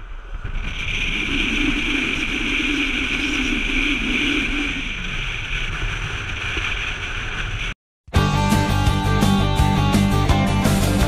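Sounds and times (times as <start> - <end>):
wind rushing: 0.0 - 7.8
moving train running noise: 0.1 - 7.8.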